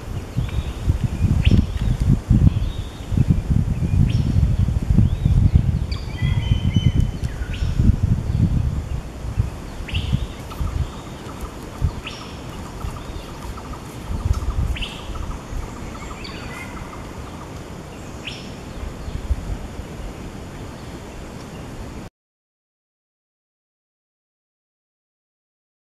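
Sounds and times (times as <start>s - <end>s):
bird whistled calls: 5.9s - 7.8s, 9.9s - 17.1s.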